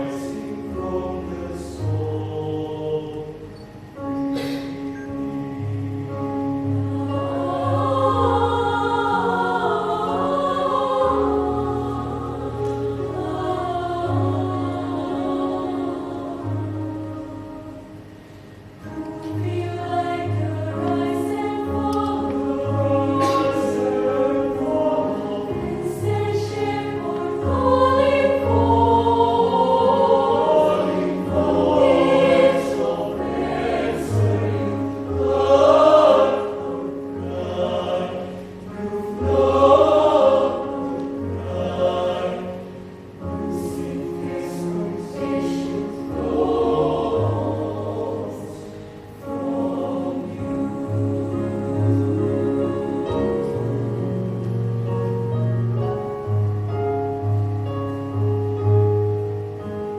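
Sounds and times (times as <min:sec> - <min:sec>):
youth choir singing: 0:00.0 - 0:03.6, 0:05.4 - 0:18.1, 0:18.8 - 0:54.6.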